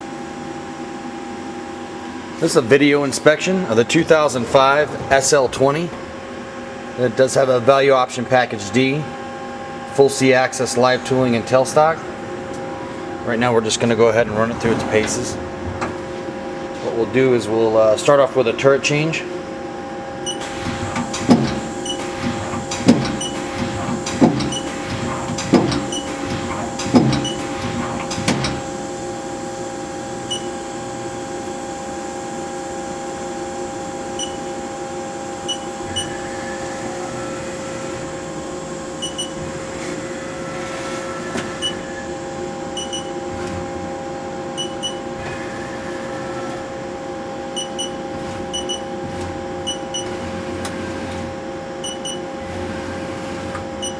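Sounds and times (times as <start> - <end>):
machine humming: 0.0 - 53.9
lathe tool turret clunks: 3.7 - 6.3, 20.3 - 28.7.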